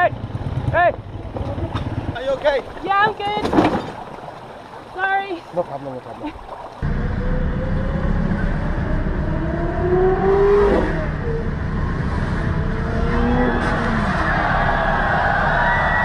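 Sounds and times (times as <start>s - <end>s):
sports car engines revving: 6.8s - 16.0s.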